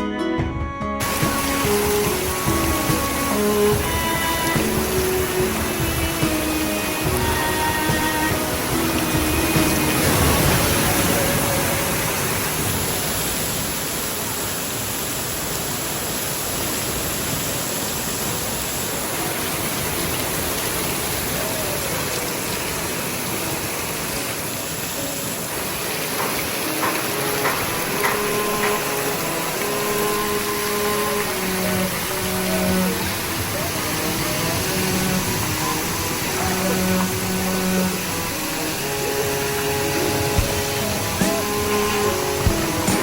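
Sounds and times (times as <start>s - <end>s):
rushing water: 0.0s - 43.0s
faint distant voices: 18.9s - 43.0s.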